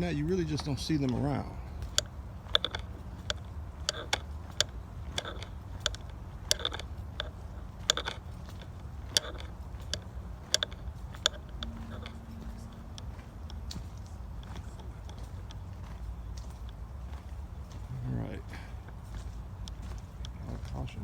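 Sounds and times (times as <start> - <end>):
crunching footsteps on trail: 0.0 - 21.0
steady low rumble: 0.0 - 21.0.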